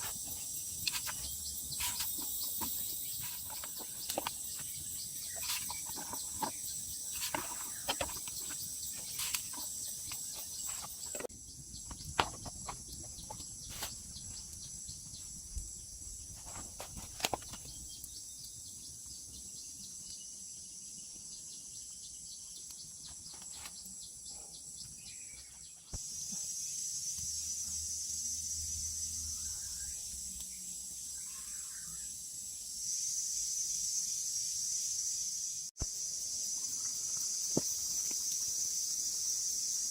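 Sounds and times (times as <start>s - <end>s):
loud hissing chirr: 0.0s - 11.6s, 26.0s - 39.9s
insects chirring: 0.0s - 39.9s.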